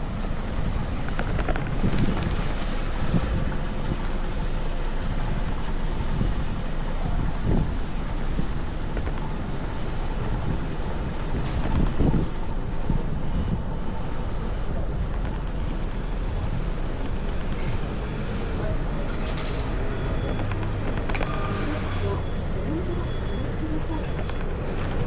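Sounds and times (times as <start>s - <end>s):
wind buffeting microphone: 0.0s - 19.1s
city street noise: 0.0s - 25.0s.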